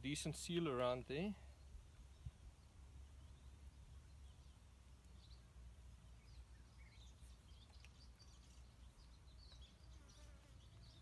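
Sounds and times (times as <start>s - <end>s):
small birds chirping: 0.0s - 11.0s
faint click: 7.6s - 8.0s.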